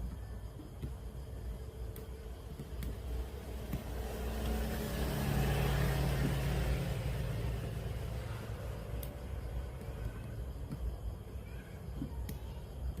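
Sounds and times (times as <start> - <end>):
vehicle passing by: 2.8 - 10.0.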